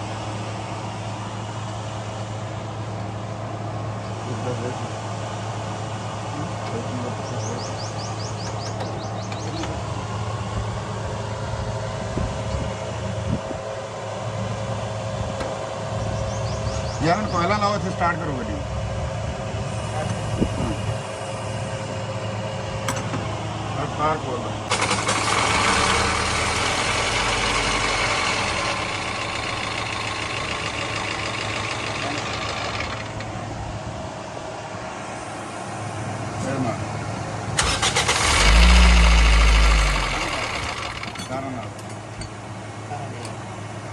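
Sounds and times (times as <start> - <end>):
bird chirping: 7.2 - 9.7, 16.0 - 17.4
car engine idling: 24.6 - 34.5, 37.6 - 42.2.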